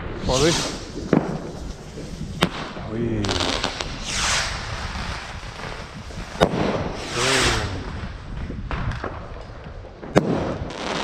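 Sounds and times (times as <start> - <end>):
firework hissing whoosh: 0.0 - 8.6
firework bang: 0.0 - 9.4, 10.0 - 11.0.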